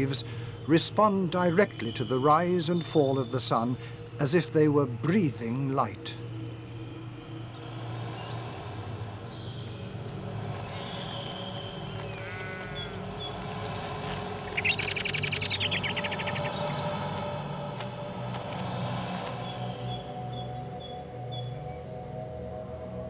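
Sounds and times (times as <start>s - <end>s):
bird chirping: 0.0s - 22.6s
low steady drone: 0.0s - 23.0s
loud rapid bird trill: 6.9s - 17.7s, 19.4s - 21.8s
bird call: 10.5s - 18.0s.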